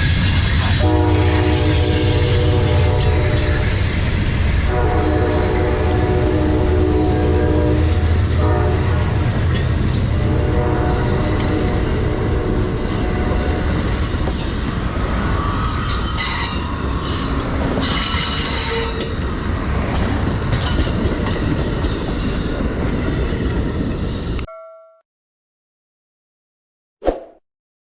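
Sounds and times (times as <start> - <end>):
train wheels squealing on rails: 0.0 - 6.2, 10.9 - 24.5
train horn: 0.8 - 3.9, 4.6 - 14.2, 17.8 - 19.2.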